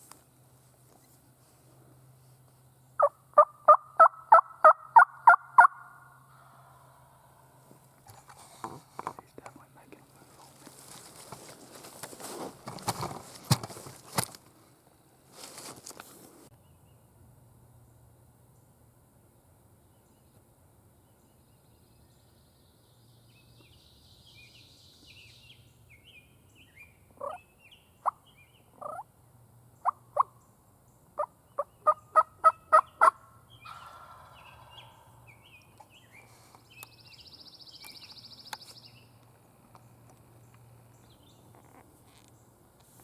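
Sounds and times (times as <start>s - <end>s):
songbirds chirping: 0.0s - 43.0s
turkey yelps: 27.2s - 27.4s, 28.8s - 29.0s.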